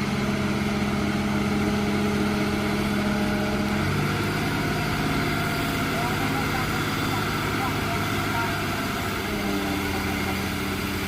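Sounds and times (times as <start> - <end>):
heavy machinery diesel engine: 0.0 - 11.0.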